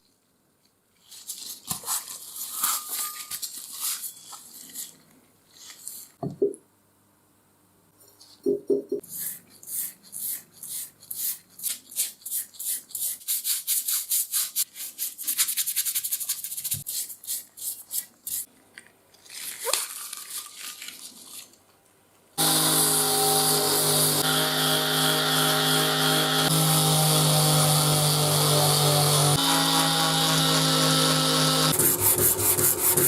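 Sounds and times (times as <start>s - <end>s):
loud machine running: 22.4s - 33.0s
rapid scrubbing strokes: 31.7s - 33.0s.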